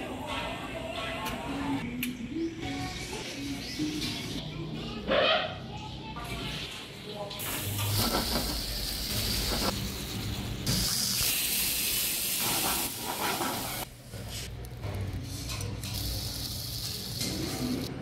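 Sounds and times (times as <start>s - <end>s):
food sizzling in frying pans: 7.4s - 13.9s.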